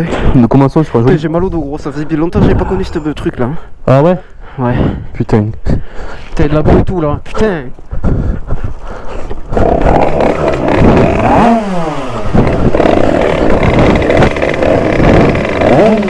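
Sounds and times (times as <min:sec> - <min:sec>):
two-stroke motorcycle engine revving: 0:09.5 - 0:16.0.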